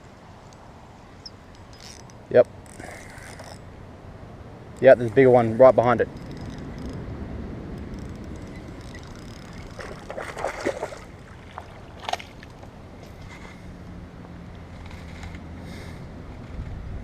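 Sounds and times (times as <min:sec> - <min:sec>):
wind rumble on microphone: 0:02.9 - 0:17.0
water sloshing splashes: 0:08.9 - 0:12.7.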